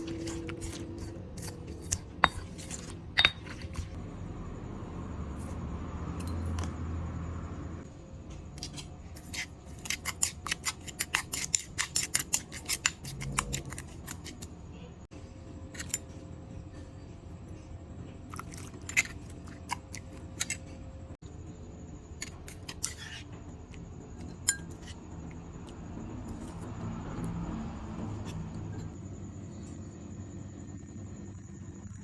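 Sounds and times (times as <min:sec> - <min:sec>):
utensils clinking against dishes: 0:00.0 - 0:04.0, 0:24.2 - 0:25.0.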